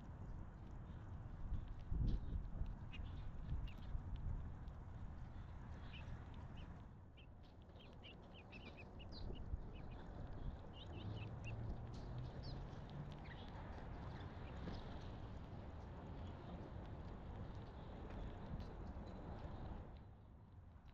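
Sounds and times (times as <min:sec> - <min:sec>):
small birds chirping: 0:02.8 - 0:03.9, 0:05.3 - 0:14.8.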